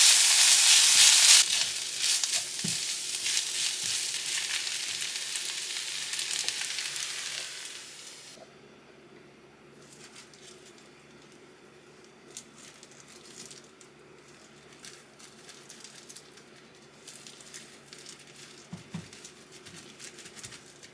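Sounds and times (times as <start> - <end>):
food sizzling in a pan: 0.0 - 8.4.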